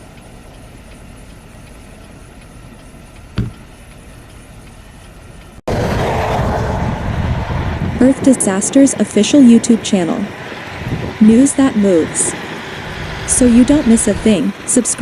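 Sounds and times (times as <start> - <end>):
vehicle and road noise: 0.0 - 15.0
sharp knock: 3.4 - 3.6.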